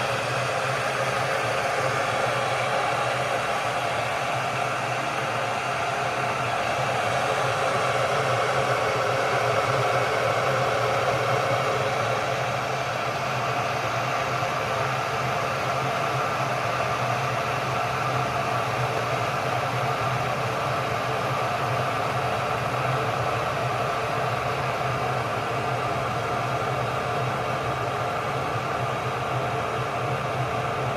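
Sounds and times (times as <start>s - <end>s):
electric kettle hissing: 0.0s - 14.8s.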